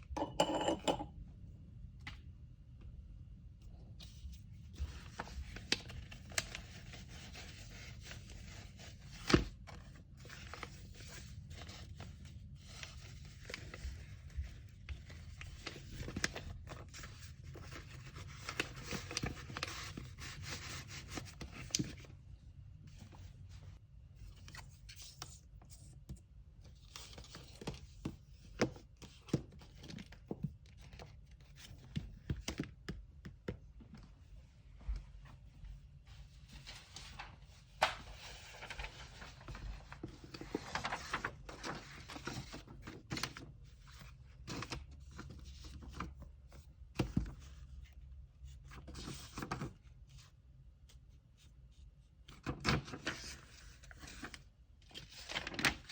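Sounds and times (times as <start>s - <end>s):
items tapping as set down: 0.2s - 1.1s
paper rustling and tearing: 36.7s - 43.3s.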